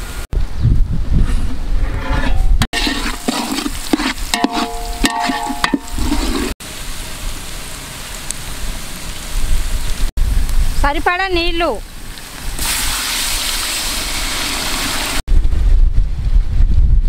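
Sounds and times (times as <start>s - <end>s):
metal ladle scraping a pot: 1.3s - 6.6s
vegetables frying in oil: 11.5s - 15.2s.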